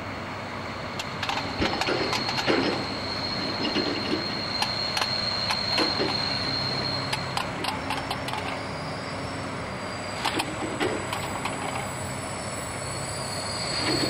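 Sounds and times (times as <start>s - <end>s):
train wheels clicking over rail joints: 1.0s - 8.7s, 10.2s - 12.0s
high-pitched metallic squeal: 1.0s - 14.0s.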